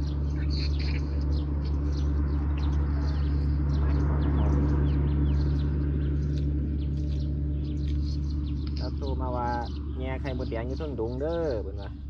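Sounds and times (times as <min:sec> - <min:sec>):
loud steady low hum: 0:00.0 - 0:12.0
small birds chirping: 0:00.0 - 0:12.0.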